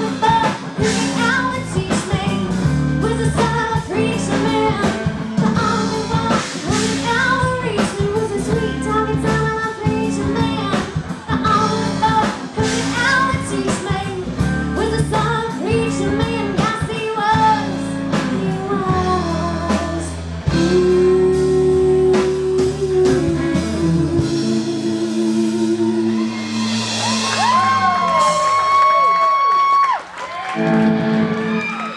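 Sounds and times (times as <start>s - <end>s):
person singing: 0.0s - 29.1s
drums: 0.0s - 31.9s
guitar: 0.0s - 31.9s
audience whistling: 25.8s - 31.9s.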